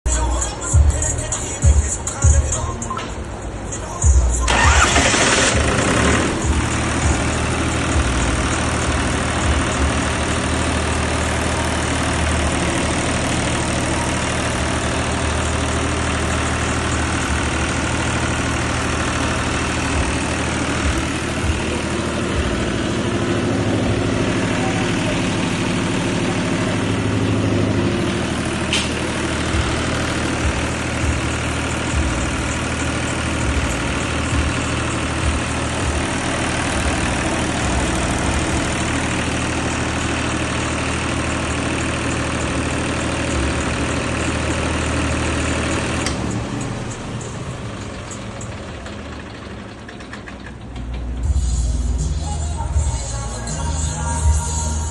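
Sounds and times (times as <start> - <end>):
engine idling: 0.1 - 54.9
sharp click: 28.7 - 29.0.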